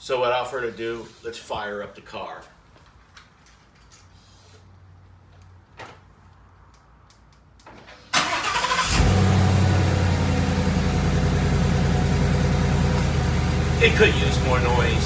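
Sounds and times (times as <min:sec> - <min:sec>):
car engine idling: 0:08.2 - 0:15.0.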